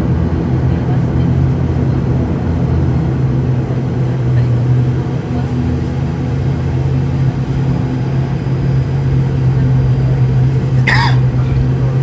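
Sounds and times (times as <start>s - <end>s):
turboprop engines droning: 0.0s - 12.0s.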